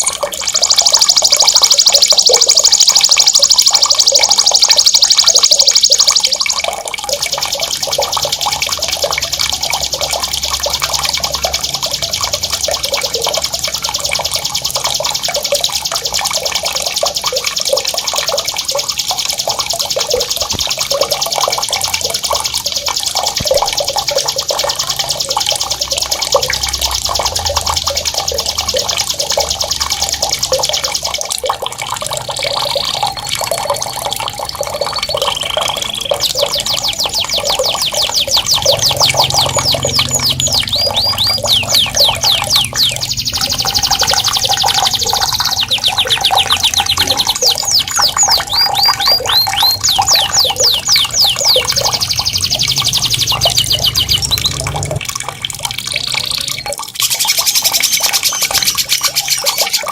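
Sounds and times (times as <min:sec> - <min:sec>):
songbird trilling: 0:00.0 - 0:22.0, 0:34.7 - 0:54.9, 0:56.2 - 0:59.9
running water: 0:00.0 - 0:59.9.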